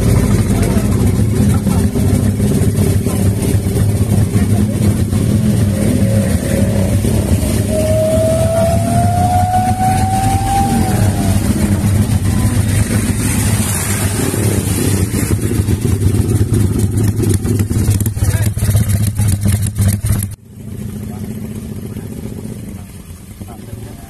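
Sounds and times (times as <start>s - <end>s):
motorcycle engine revving: 0.0s - 24.0s
thin rising whistle: 7.1s - 12.2s.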